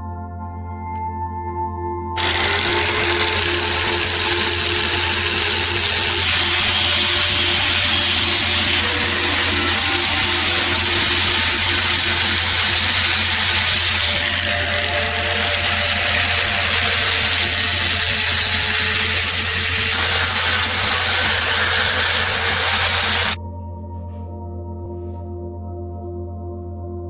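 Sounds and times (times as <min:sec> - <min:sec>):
power tool running: 0:02.2 - 0:23.4.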